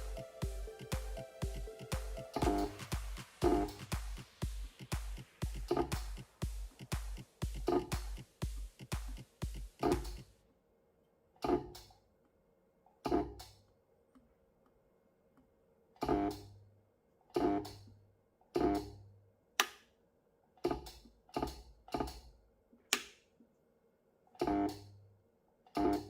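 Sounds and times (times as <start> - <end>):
guitar chords: 0.0 - 4.2.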